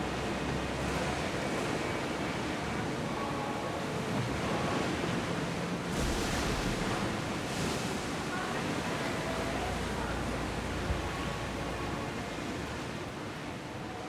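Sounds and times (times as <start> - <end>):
wind: 0.0 - 14.0
sea waves washing: 4.2 - 13.6.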